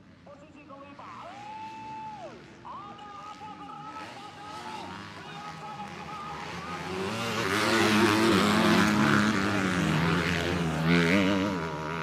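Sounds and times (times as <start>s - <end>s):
racing motorcycles revving past: 4.0s - 12.0s.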